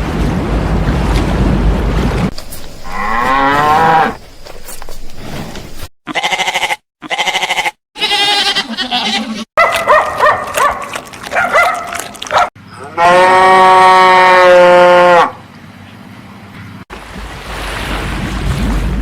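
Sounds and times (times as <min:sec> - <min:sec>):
bleating: 0:06.1 - 0:09.5.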